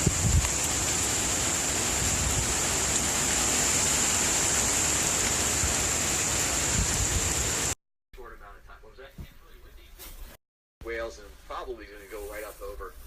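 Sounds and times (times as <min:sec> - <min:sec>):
heavy rain rushing: 0:00.0 - 0:07.8.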